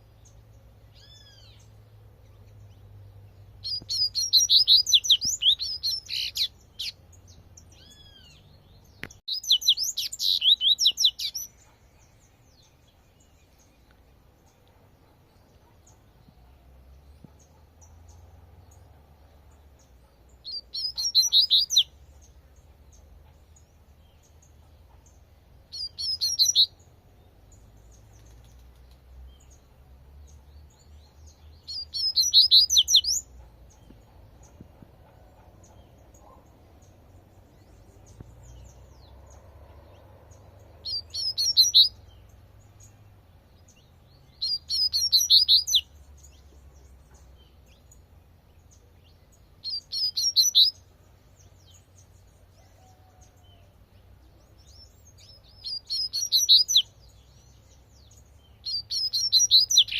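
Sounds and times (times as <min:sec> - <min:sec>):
bird singing high repeated notes: 0:03.5 - 0:13.4, 0:20.5 - 0:22.0, 0:25.7 - 0:26.8, 0:31.5 - 0:33.2, 0:40.3 - 0:42.9, 0:44.3 - 0:45.9, 0:49.6 - 0:50.8, 0:54.7 - 0:56.9, 0:58.5 - 0:59.9
faint low rumble: 0:33.2 - 0:44.7.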